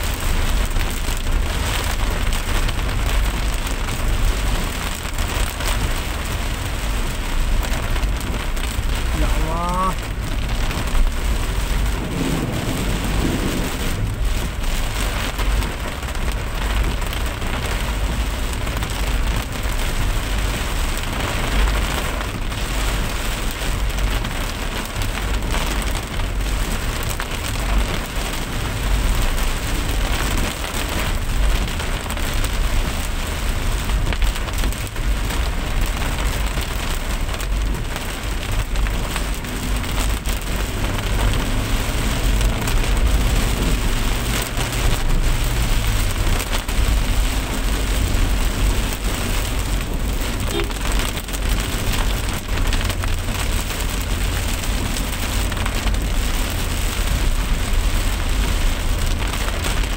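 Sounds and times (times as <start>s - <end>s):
constant low rumble: 0.0s - 59.9s
steady rain hiss: 0.0s - 59.9s.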